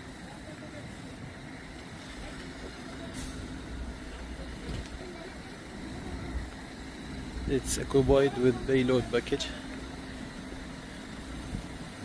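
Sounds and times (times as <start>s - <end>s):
rumble of vehicles: 0.0s - 12.0s.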